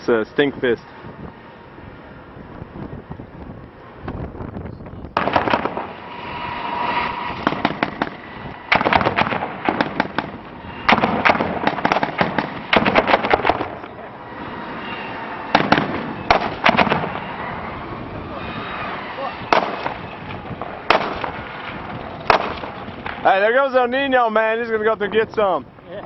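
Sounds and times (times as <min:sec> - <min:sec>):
automatic weapon fire: 0:05.2 - 0:06.0, 0:07.4 - 0:13.8, 0:15.5 - 0:17.2, 0:19.5 - 0:20.0, 0:20.6 - 0:21.5, 0:22.2 - 0:22.8.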